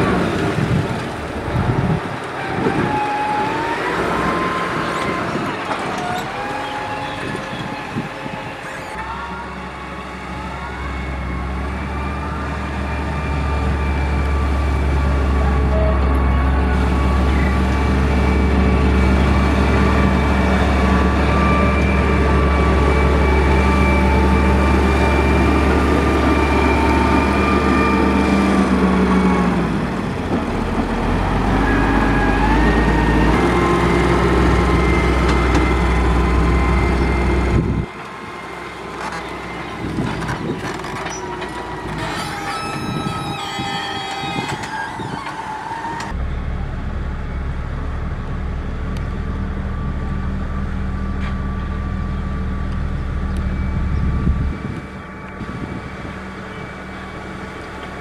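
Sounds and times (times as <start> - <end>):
heavy diesel engine running: 0.0 - 58.0
machine whining: 38.9 - 58.0.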